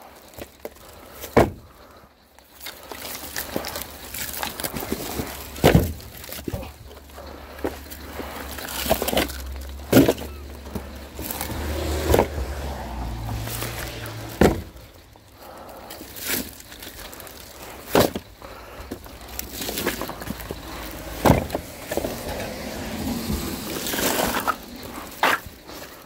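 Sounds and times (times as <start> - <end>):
sharp knocks and thumps: 1.2 - 1.7, 4.7 - 6.7, 13.8 - 14.8, 18.9 - 24.6.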